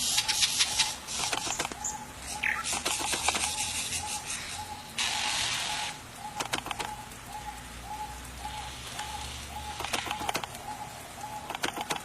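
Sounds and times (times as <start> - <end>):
bird calling a clear note: 0.2 - 12.0
sharp clicks: 1.2 - 1.8, 2.6 - 3.6, 6.4 - 7.0, 9.8 - 10.6, 11.4 - 12.0.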